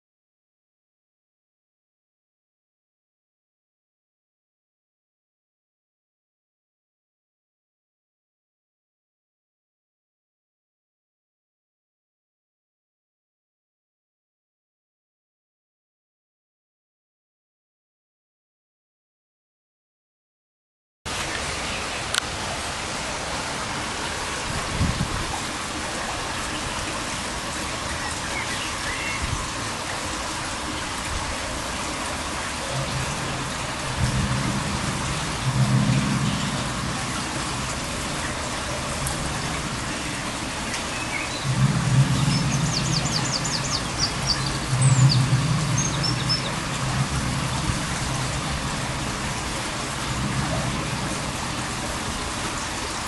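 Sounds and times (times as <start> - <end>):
constant hiss: 21.1 - 53.0
low droning hum: 31.7 - 52.2.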